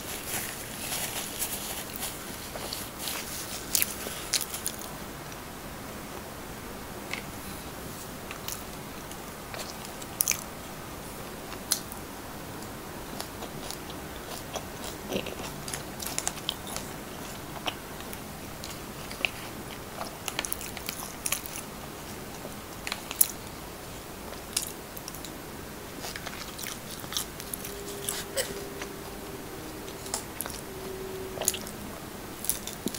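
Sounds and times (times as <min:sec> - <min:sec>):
steady hiss: 0:00.0 - 0:32.9
person chewing and eating: 0:13.0 - 0:23.6, 0:24.3 - 0:32.9.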